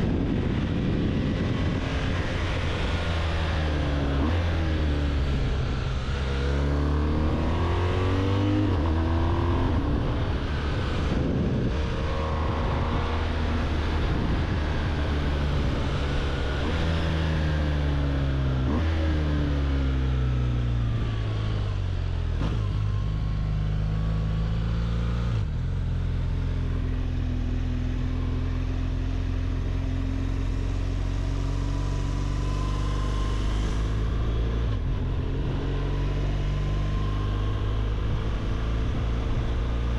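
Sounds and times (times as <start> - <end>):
wind rush: 0.0 - 4.2, 7.2 - 16.8
motorcycle engine revving: 0.0 - 39.9.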